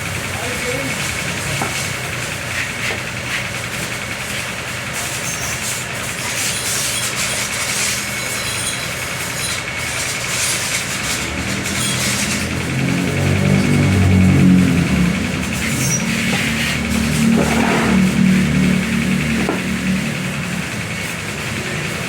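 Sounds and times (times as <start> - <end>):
machine hum: 8.1 - 22.0.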